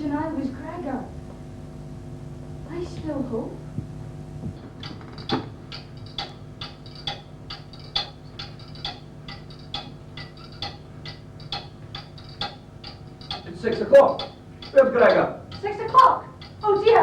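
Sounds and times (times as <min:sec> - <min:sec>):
low steady hum: 0:00.0 - 0:17.0
clock ticking: 0:04.8 - 0:17.0.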